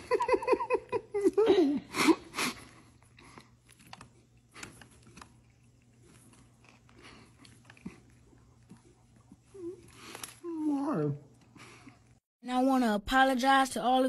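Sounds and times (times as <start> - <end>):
person chewing food: 0.7 - 10.7.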